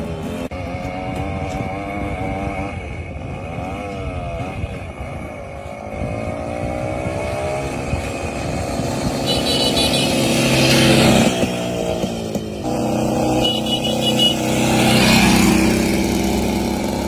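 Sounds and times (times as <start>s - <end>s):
two-stroke motorcycle engine revving: 0.0s - 17.0s.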